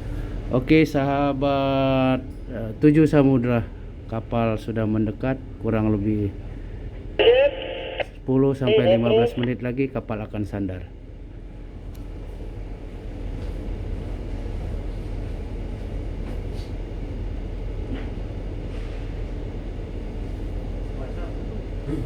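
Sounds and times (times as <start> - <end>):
ship engine rumble: 6.3 - 8.1, 8.7 - 9.5.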